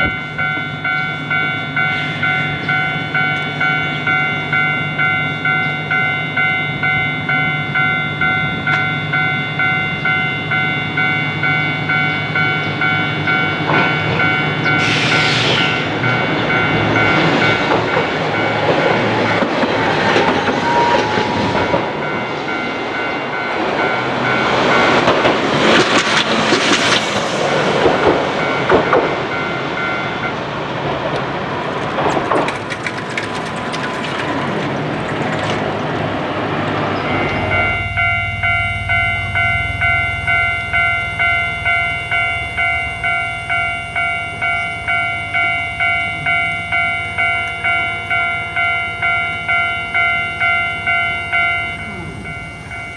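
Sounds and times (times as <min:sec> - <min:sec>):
level-crossing alarm ding: 0:00.0 - 0:25.2, 0:36.9 - 0:52.9
streetcar wheels clattering on rails: 0:00.0 - 0:52.9.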